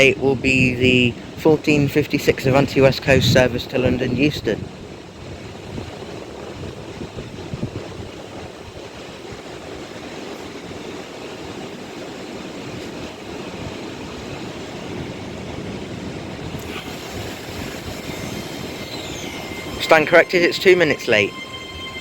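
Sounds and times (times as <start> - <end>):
train wheels rumbling: 11.2 - 22.0.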